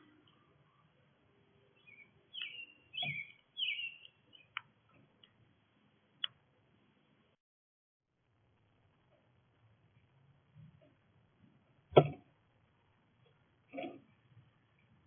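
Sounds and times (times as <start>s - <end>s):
small birds chirping: 1.8s - 5.3s.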